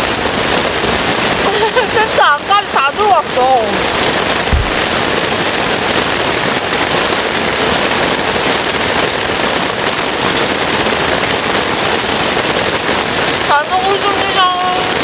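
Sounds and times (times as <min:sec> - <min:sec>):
heavy rain on a tent: 0:00.0 - 0:15.0
low thump: 0:04.4 - 0:05.1.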